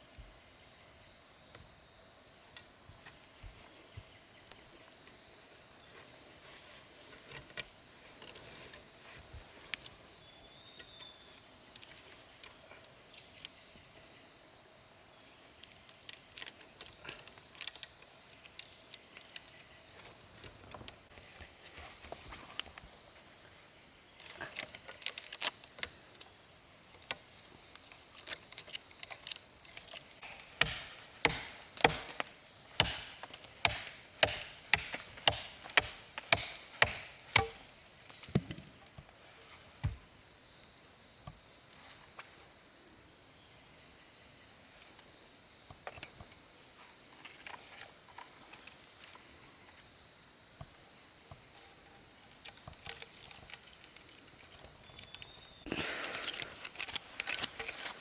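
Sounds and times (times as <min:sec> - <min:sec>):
chopping blows on wood: 0:30.2 - 0:37.6.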